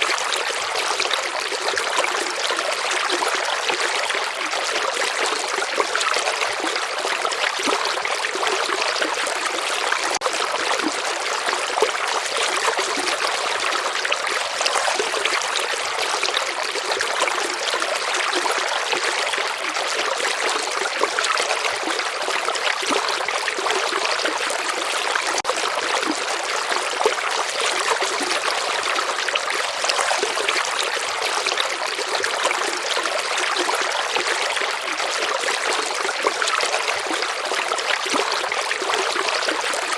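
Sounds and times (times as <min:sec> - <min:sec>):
stream flowing and trickling: 0:00.0 - 0:39.9.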